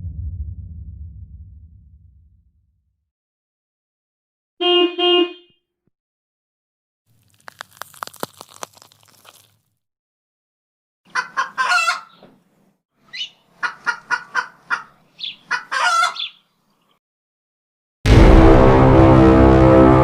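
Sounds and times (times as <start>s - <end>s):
deep cinematic horn blast: 0.0s - 2.6s, 18.1s - 20.0s
chicken clucking: 11.1s - 12.3s, 13.1s - 16.4s.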